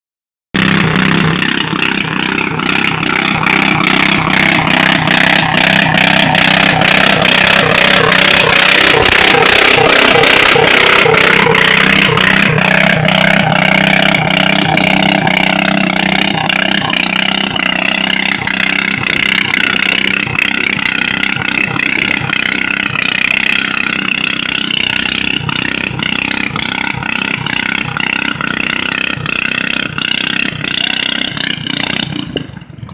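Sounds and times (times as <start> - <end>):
garden tractor engine at high revs: 0.5 - 32.9.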